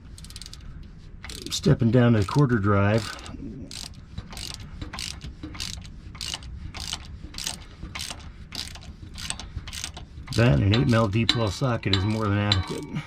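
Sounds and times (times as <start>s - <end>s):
ratchet clicking: 0.1s - 0.6s, 1.2s - 12.9s.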